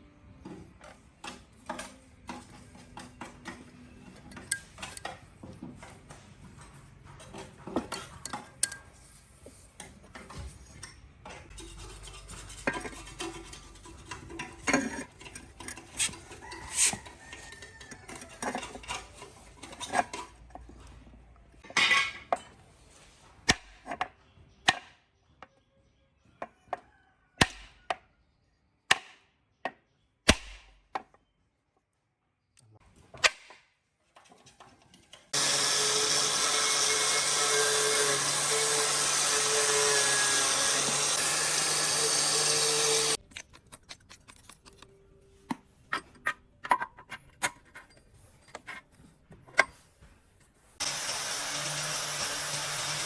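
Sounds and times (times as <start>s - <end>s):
power tool running: 35.4s - 43.2s, 50.8s - 53.0s.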